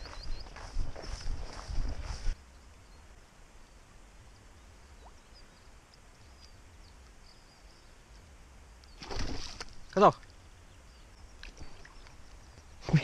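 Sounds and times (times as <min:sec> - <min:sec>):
faint high bird chirps: 0:00.0 - 0:03.1
low steady hiss: 0:02.2 - 0:13.0.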